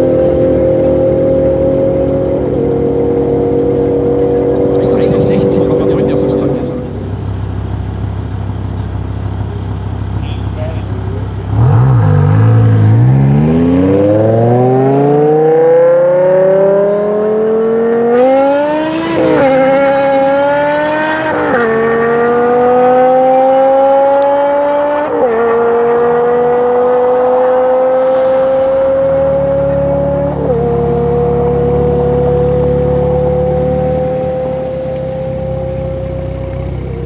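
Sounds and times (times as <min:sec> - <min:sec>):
car engine accelerating hard: 0:00.0 - 0:37.0.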